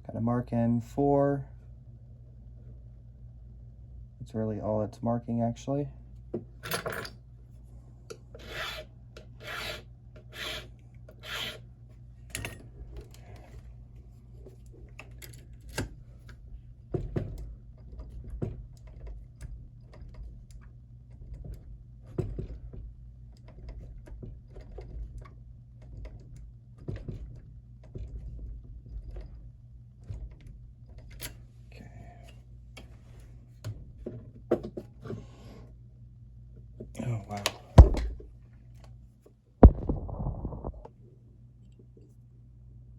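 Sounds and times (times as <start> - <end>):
file rasping on brass key: 8.4 - 11.6.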